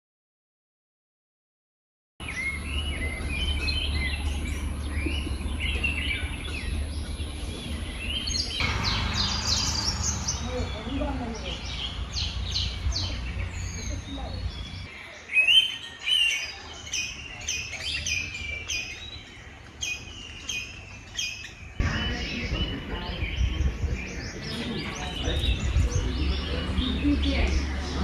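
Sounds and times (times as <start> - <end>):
songbirds chirping: 2.2 - 28.0
low rumble: 2.4 - 14.9, 21.8 - 28.0.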